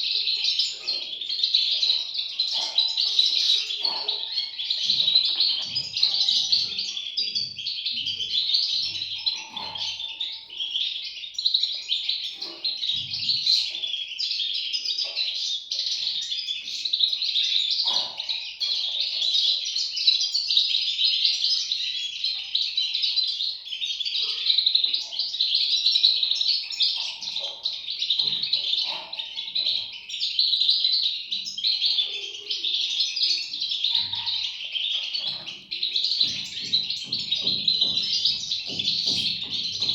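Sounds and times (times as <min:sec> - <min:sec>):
bird chicks chirping: 0:00.0 - 0:39.9.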